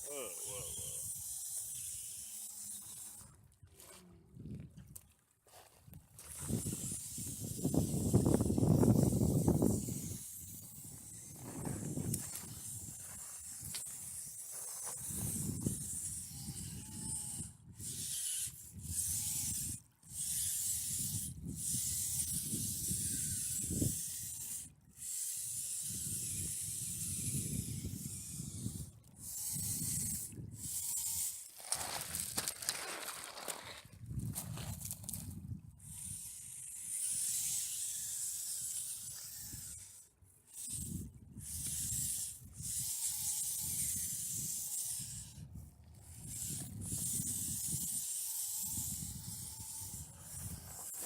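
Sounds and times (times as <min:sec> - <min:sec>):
small electric motor whir: 0:00.0 - 0:04.0, 0:06.2 - 0:51.0
wind buffeting microphone: 0:06.4 - 0:13.8, 0:15.0 - 0:18.1, 0:25.8 - 0:30.8, 0:33.8 - 0:36.3, 0:40.7 - 0:51.0.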